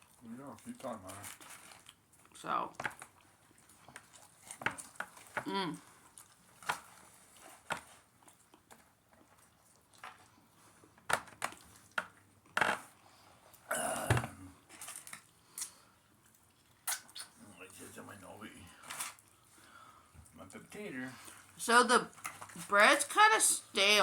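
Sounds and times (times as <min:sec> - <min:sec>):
chewing: 0:00.0 - 0:23.0
paper wrappers crinkling: 0:00.6 - 0:02.0, 0:14.7 - 0:15.3.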